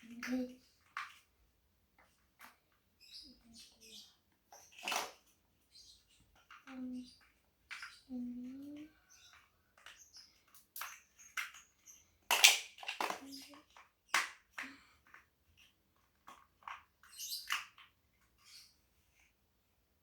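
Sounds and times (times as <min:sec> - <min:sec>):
plastic bricks clicking: 0:04.6 - 0:05.3, 0:08.6 - 0:18.0.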